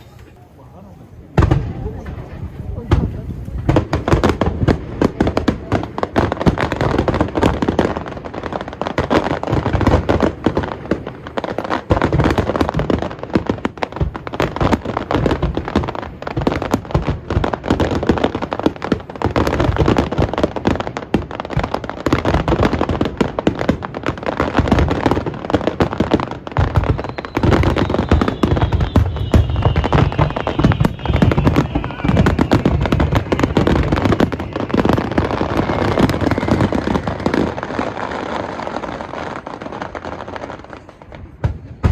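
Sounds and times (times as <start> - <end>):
fireworks bursting and crackling: 0.0 - 41.9
faint descending whistle: 26.8 - 37.2.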